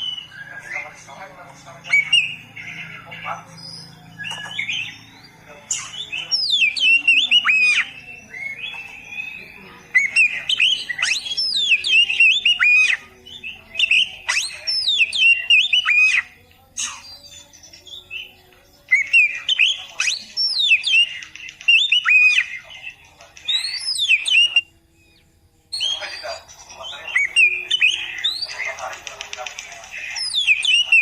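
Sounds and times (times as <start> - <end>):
bird singing whistled phrases: 1.9 - 2.9, 3.6 - 28.9, 30.2 - 31.0.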